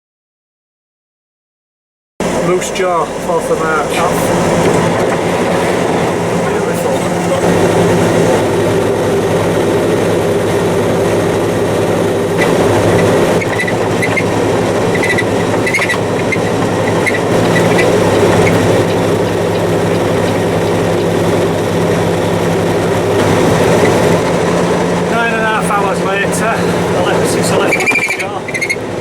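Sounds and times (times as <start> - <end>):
diesel engine droning: 2.2 - 29.0
faint high squeaks: 12.4 - 20.5, 27.5 - 28.8.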